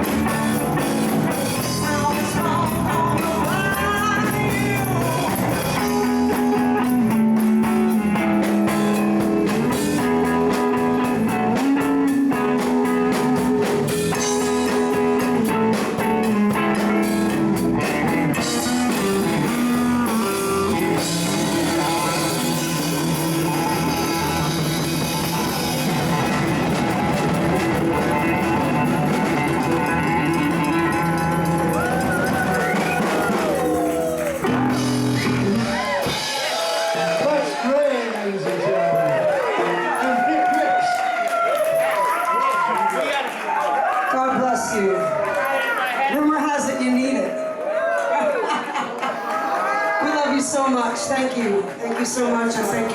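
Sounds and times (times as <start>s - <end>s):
electric guitar bending notes: 0.0s - 36.8s
drum kit: 0.0s - 38.2s.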